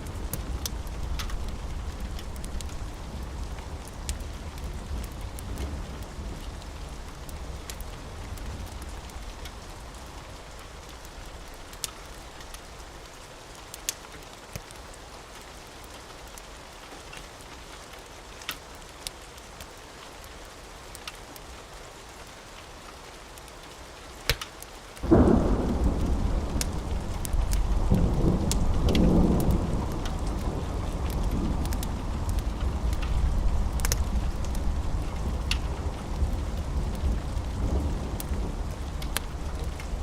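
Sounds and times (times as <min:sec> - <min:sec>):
steady rain: 0:00.0 - 0:40.0
sharp pops: 0:24.3 - 0:24.5
loud thunderclap: 0:25.0 - 0:40.0
low thunder rumble: 0:25.0 - 0:40.0.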